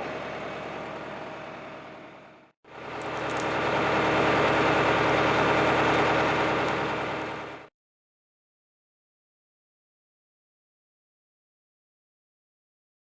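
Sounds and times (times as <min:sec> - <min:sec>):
tractor diesel engine running: 0:02.7 - 0:07.7.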